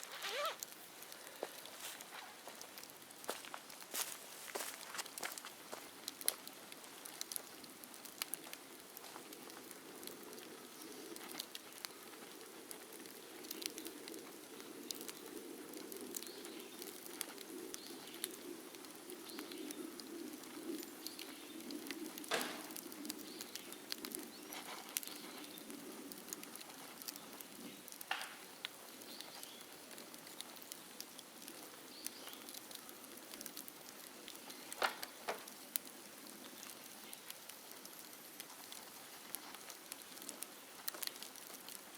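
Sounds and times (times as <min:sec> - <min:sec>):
bonfire crackling and popping: 0:00.0 - 0:41.9.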